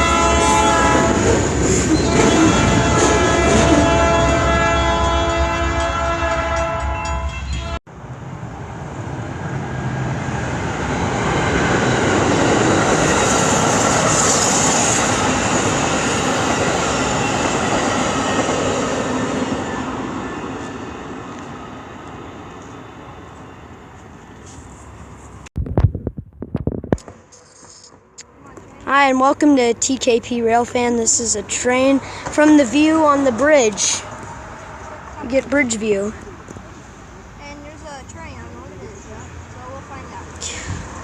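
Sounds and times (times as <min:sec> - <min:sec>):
locomotive air horn: 0:00.0 - 0:07.8
train rolling past: 0:00.0 - 0:25.5, 0:27.1 - 0:41.0.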